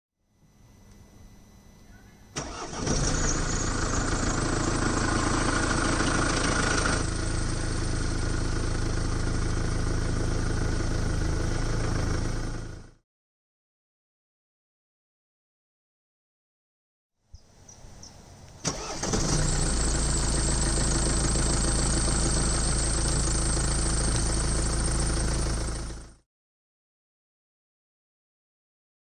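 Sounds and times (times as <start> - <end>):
faint hum: 0.2 - 2.4
starter motor cranking: 2.4 - 7.2, 18.6 - 26.1
diesel engine idling: 2.4 - 13.0, 18.2 - 26.2.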